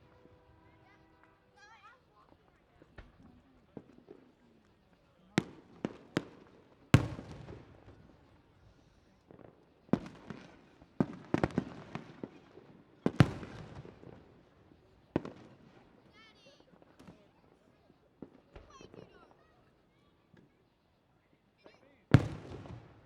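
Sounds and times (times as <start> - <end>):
fireworks bangs: 22.2 - 23.0.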